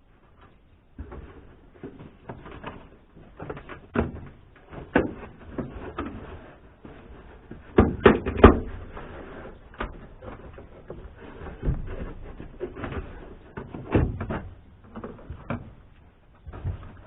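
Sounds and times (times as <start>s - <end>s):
plastic trim knocking and clunking: 3.4s - 6.1s, 7.6s - 8.9s, 11.6s - 17.0s.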